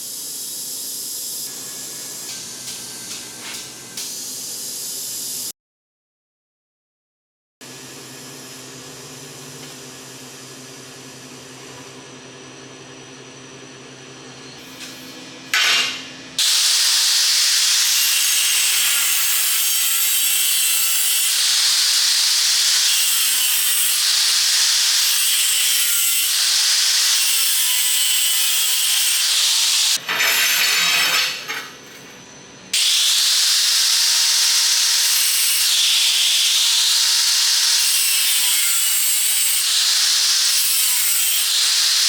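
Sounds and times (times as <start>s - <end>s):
power tool grinding: 15.6s - 32.0s.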